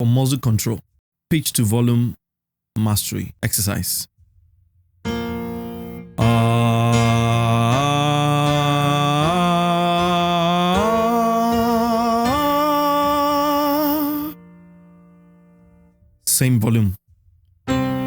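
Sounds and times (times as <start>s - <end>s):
held keyboard note: 5.1s - 15.0s
man singing a rising scale: 6.2s - 14.4s.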